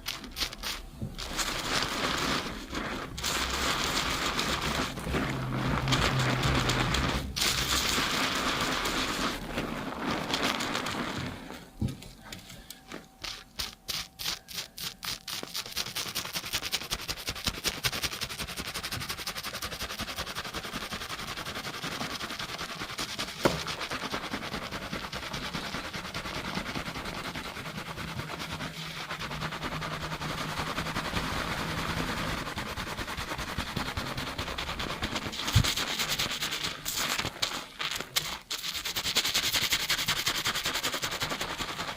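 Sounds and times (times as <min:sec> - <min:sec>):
fingers scrubbing lathered scalp: 0:00.0 - 0:11.8, 0:13.1 - 0:41.9.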